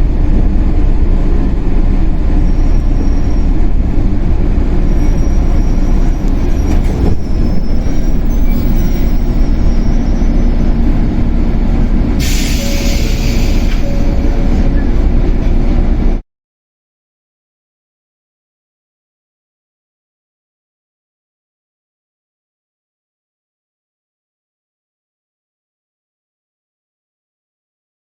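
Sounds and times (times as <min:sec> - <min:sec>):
electric train rumbling on track: 0:00.0 - 0:16.2
loud hiss: 0:12.2 - 0:14.0.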